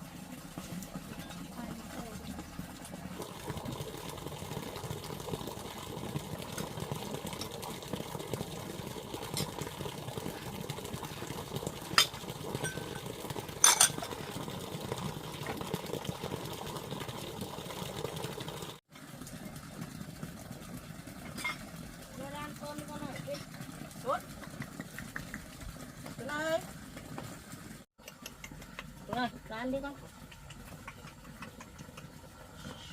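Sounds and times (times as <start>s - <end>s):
tableware clinking on bowl: 13.6s - 14.1s.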